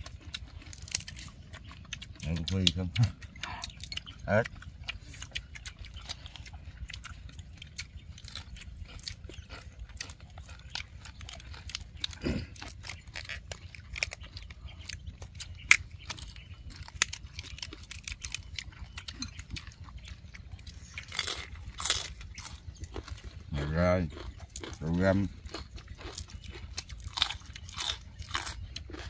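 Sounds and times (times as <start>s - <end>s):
lip-smacking and mouth clicks: 0.0s - 21.4s
people chewing: 0.0s - 29.0s.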